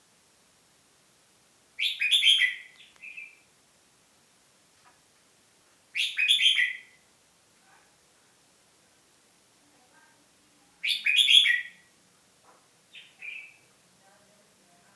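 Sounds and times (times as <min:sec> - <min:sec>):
songbird whistling: 0:01.8 - 0:03.4, 0:06.0 - 0:07.0, 0:10.8 - 0:11.9.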